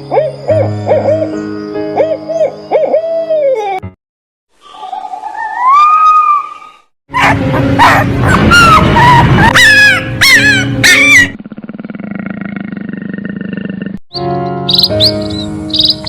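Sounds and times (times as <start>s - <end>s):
dog whining and yelping: 7.2s - 11.4s.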